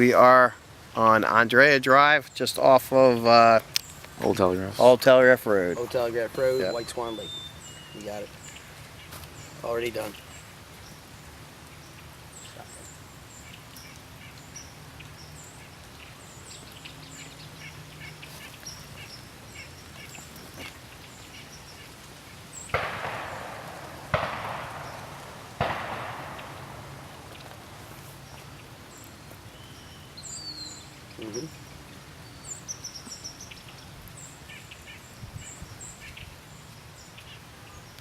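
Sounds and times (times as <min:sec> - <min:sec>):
birds chirping faintly: 0:00.0 - 0:38.0
distant shotgun blasts echoing: 0:22.7 - 0:28.4.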